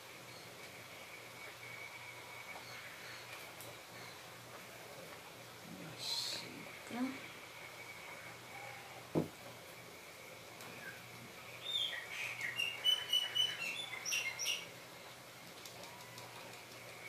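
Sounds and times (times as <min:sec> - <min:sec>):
thump: 0:09.1 - 0:09.4
bird chirping: 0:10.7 - 0:14.7.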